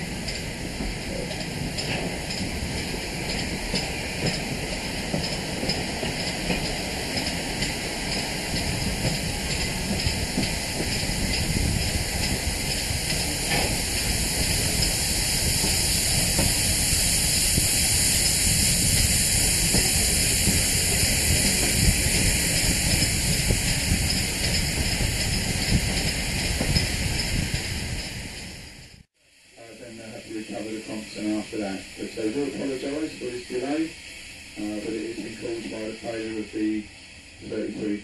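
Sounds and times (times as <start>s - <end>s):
train wheels on rail: 0.0s - 38.0s
rush of air: 5.9s - 29.5s.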